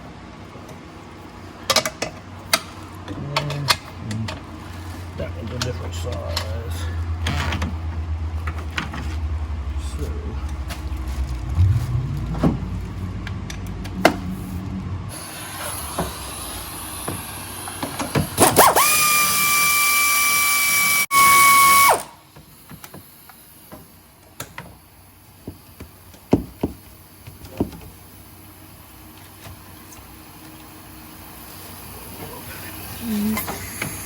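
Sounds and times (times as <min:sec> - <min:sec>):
high whine of spinning tool: 0:15.1 - 0:22.2.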